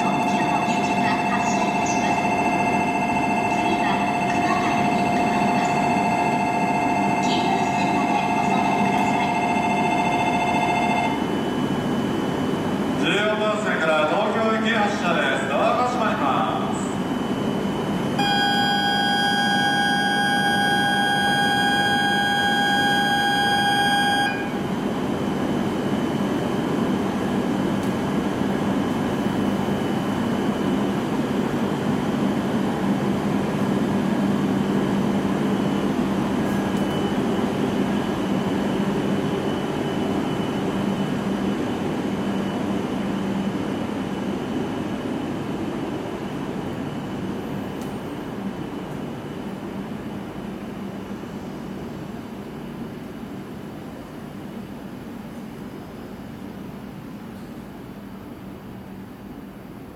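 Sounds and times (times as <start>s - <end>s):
electronic beep tone: 0.0s - 11.2s, 18.2s - 24.6s.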